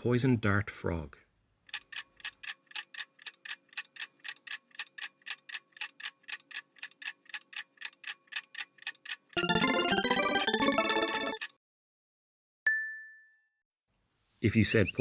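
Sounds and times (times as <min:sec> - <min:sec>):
clock ticking: 0:01.7 - 0:11.5
chiming musical jingle: 0:09.4 - 0:11.4.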